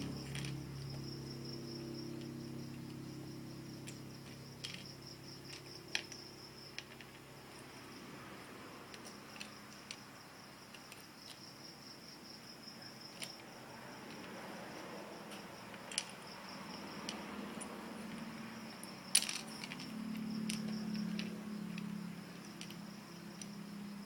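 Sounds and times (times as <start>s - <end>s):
cricket trilling: 0.0s - 24.0s
plastic bricks clicking: 15.8s - 16.2s, 19.1s - 19.9s.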